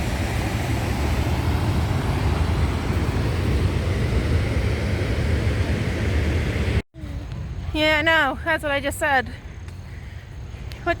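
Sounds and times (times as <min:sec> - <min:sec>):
waterfall roaring: 0:00.0 - 0:06.8.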